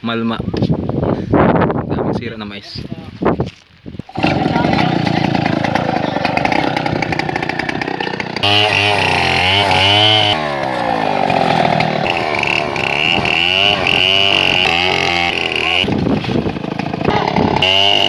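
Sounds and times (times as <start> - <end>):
chainsaw cutting wood: 4.1 - 18.0.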